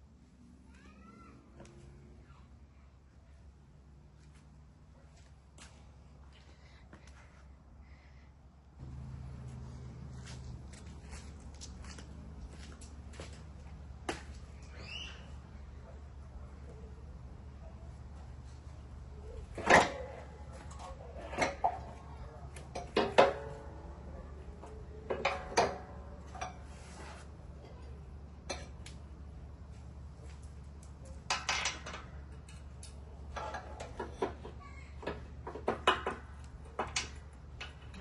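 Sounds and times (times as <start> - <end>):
steady low hum: 1.4 - 33.4
metal tools clinking and clanking: 31.0 - 38.0.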